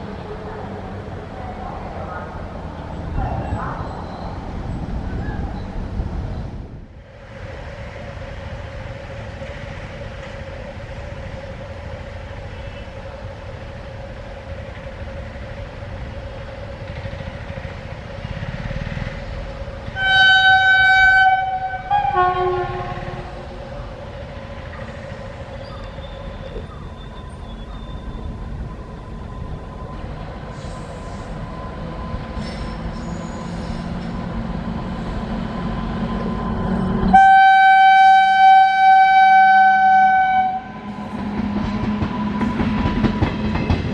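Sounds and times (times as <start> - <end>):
train rumble: 0.0 - 43.9
locomotive horn blasts: 20.0 - 23.4, 37.0 - 40.8.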